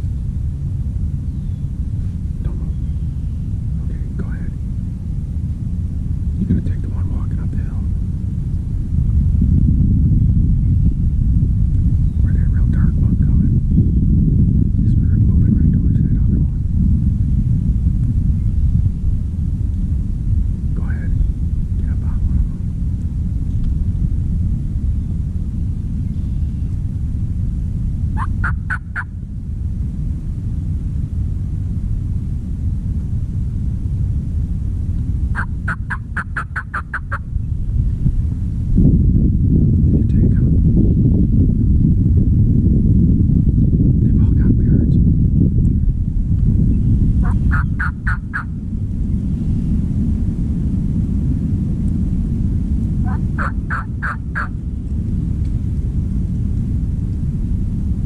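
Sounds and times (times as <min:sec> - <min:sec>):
steady low rumble: 0:00.0 - 0:58.0
wild turkey calls: 0:28.2 - 0:29.1, 0:35.4 - 0:37.2, 0:47.2 - 0:48.5, 0:53.1 - 0:54.5.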